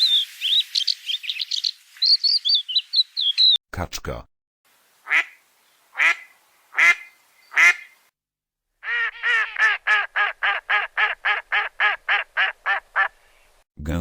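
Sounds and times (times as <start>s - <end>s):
duck quacking: 5.0s - 5.4s, 6.0s - 7.9s, 8.8s - 13.2s.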